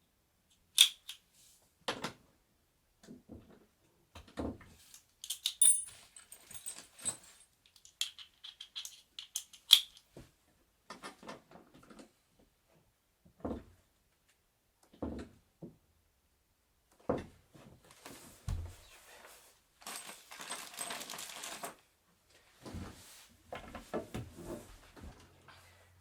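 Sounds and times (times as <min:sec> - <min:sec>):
heavy thump: 0:18.5 - 0:18.8.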